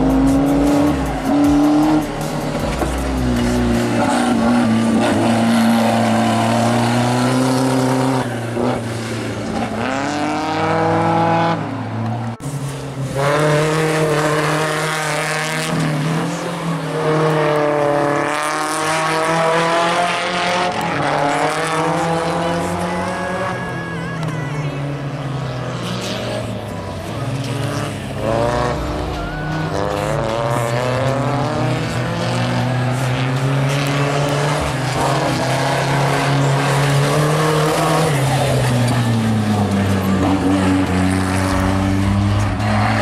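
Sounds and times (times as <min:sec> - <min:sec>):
race car engine revving: 0:00.0 - 0:43.0.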